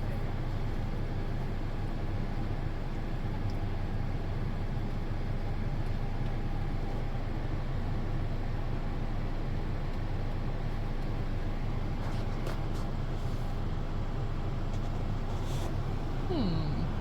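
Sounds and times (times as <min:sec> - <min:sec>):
car idling from inside cabin: 0:15.2 - 0:17.0.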